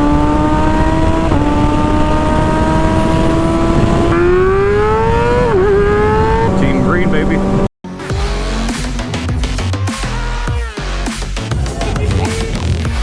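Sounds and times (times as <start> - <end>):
motorcycle engine revving high: 0.0 - 10.5.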